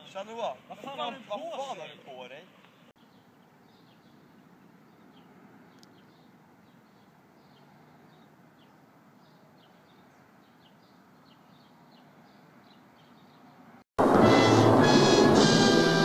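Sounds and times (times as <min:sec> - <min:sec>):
outdoor background hiss: 0:00.0 - 0:13.8
small birds chirping: 0:02.4 - 0:13.8.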